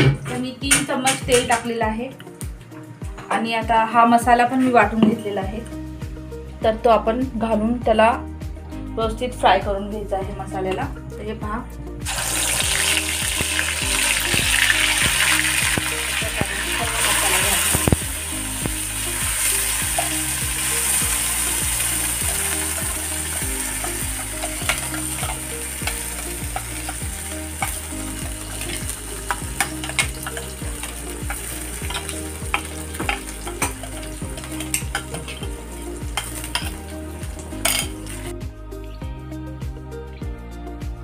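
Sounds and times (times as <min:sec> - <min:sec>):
paste sizzling in hot oil: 0:12.0 - 0:38.3.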